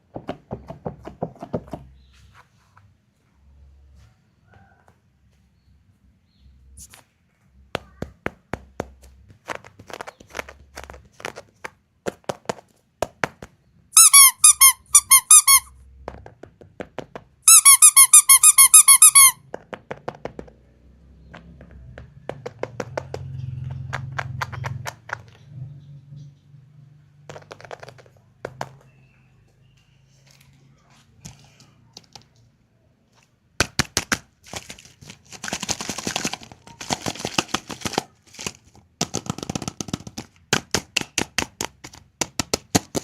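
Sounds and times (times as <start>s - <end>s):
plastic toys tapping and clicking: 7.7s - 25.5s, 27.2s - 29.1s, 33.6s - 43.0s
squeaking toy high squeaks: 14.0s - 15.8s, 17.4s - 19.4s.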